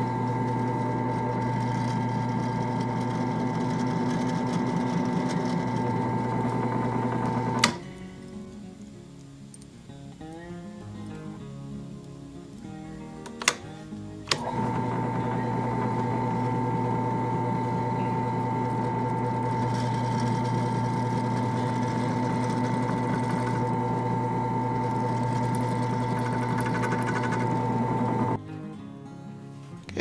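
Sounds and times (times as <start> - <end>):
small electric motor running: 0.0 - 7.6, 14.4 - 28.4
switch click: 7.6 - 7.9, 13.2 - 13.7.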